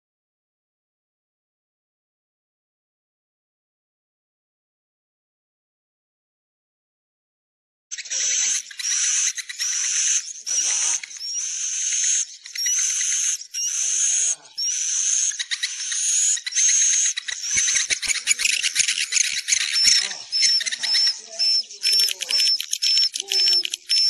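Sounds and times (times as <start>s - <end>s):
swiftlet chirps with rising whistle: 8.0s - 24.0s.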